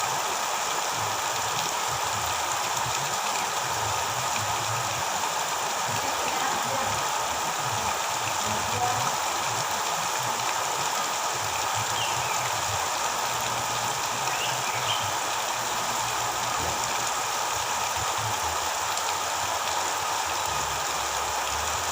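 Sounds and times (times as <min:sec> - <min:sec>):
rushing water: 0:00.0 - 0:21.9
faint bird chirps: 0:11.9 - 0:12.5, 0:14.2 - 0:15.2.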